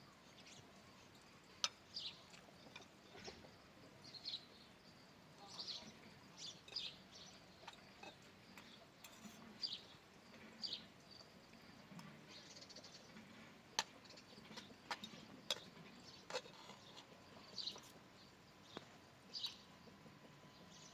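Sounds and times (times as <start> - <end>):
faint bird chirps: 12.2 - 13.2, 14.0 - 20.9.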